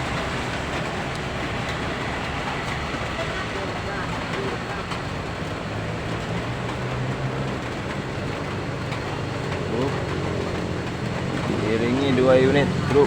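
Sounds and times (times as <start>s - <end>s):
heavy truck engine running: 0.0s - 13.0s
wet road noise: 0.0s - 13.0s.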